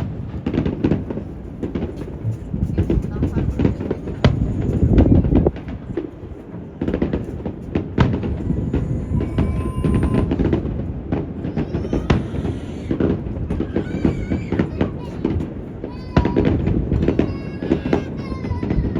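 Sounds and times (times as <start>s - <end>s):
fireworks bangs: 0.0s - 18.9s
wind rumble on microphone: 0.0s - 18.9s.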